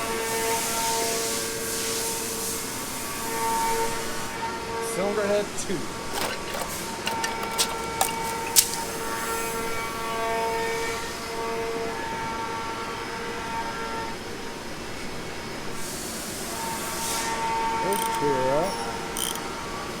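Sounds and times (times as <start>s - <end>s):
metal tools clinking: 6.1s - 9.0s.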